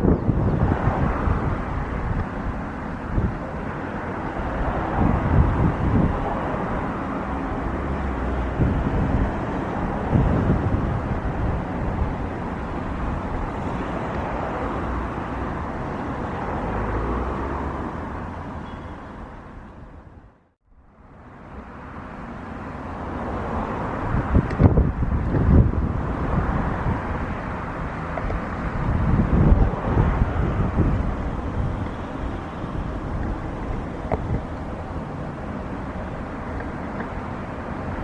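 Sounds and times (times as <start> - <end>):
jet engines roaring: 0.0 - 18.8
wind buffeting microphone: 0.0 - 20.4, 23.0 - 38.0.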